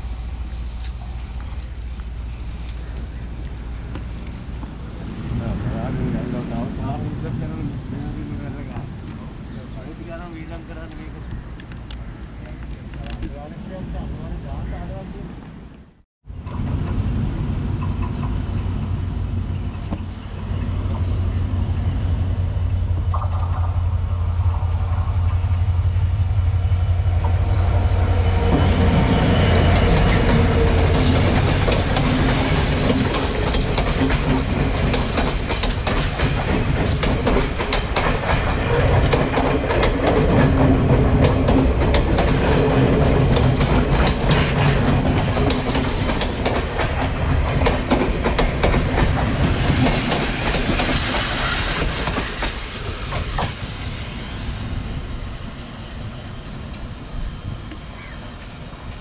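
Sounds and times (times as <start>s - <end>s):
diesel train engine hum: 0.0s - 59.0s
wheels clattering over rail joints: 29.5s - 53.6s.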